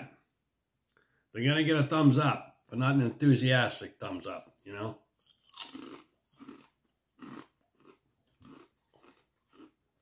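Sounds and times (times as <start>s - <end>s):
crunching potato chip: 5.2s - 9.8s.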